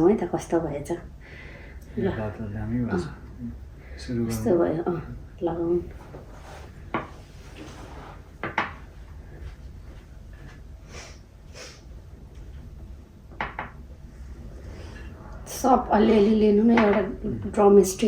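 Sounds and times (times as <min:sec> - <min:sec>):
faint rustling: 0:05.8 - 0:10.7
tableware knocking and clinking: 0:08.4 - 0:08.8, 0:16.7 - 0:17.1.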